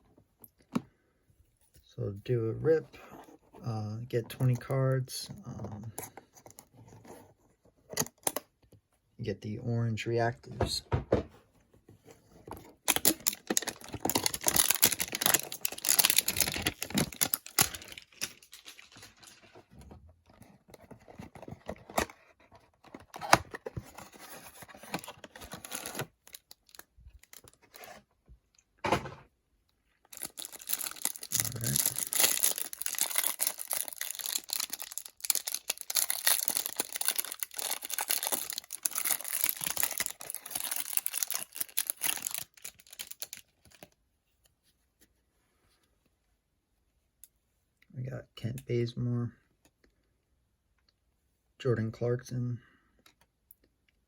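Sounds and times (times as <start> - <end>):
cardboard and plastic tearing: 12.8 - 19.5, 20.8 - 28.0, 30.2 - 43.7.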